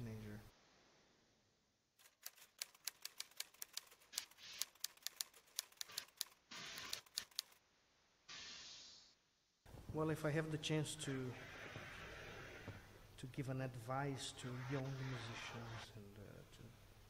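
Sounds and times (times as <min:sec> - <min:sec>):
typewriter keys clacking: 0:02.0 - 0:07.6
short hissing sweeps: 0:08.3 - 0:09.2, 0:11.2 - 0:13.0.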